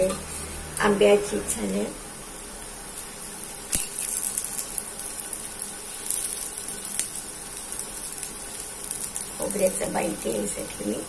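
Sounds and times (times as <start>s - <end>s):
cutlets sizzling in oil: 0.0s - 11.0s.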